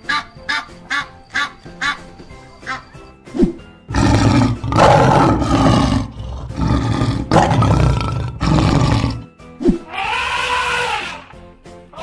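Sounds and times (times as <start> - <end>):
lion roaring: 3.9 - 9.2.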